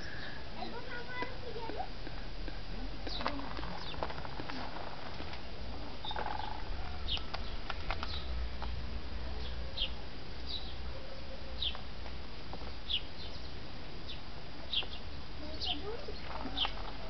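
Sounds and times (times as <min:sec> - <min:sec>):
steady low rumble: 0:00.0 - 0:17.0
small bird chirping: 0:03.0 - 0:04.2, 0:06.0 - 0:08.4, 0:09.4 - 0:10.9, 0:11.5 - 0:11.9, 0:12.8 - 0:17.0.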